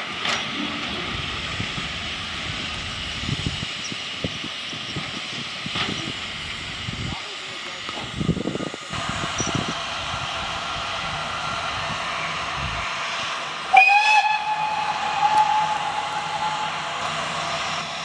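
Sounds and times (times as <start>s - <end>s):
steam locomotive hissing: 0.0s - 18.0s
steam whistle: 11.7s - 18.0s.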